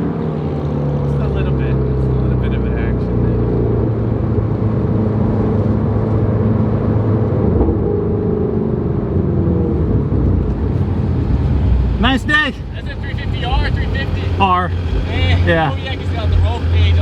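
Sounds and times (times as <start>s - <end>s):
car engine idling low: 9.8s - 17.0s.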